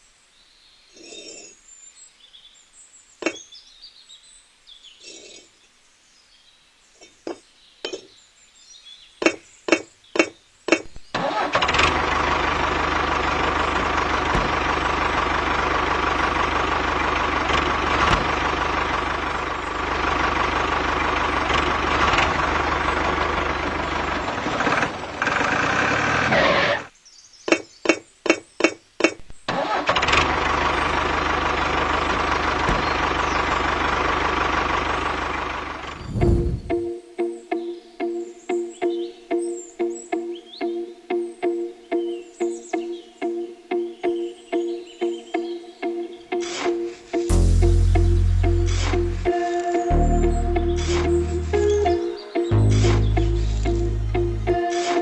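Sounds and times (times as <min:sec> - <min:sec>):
small engine starting and running: 0:11.2 - 0:26.9, 0:29.5 - 0:36.2.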